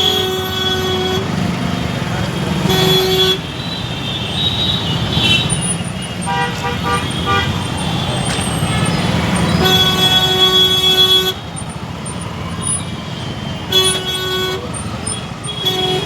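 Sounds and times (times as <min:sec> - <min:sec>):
vehicle horn honking: 0:00.0 - 0:01.4, 0:02.5 - 0:11.5, 0:13.7 - 0:16.0
motorbike engine and road rumble: 0:00.0 - 0:16.0.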